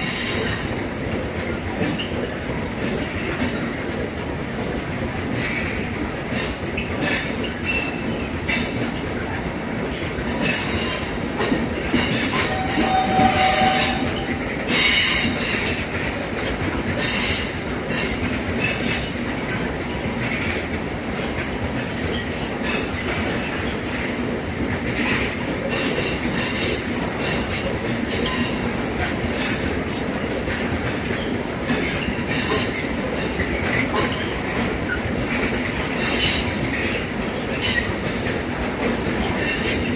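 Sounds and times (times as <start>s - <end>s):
train wheels clacking over rail joints: 0.0s - 39.9s
wheel flanges squealing on track: 12.2s - 15.2s.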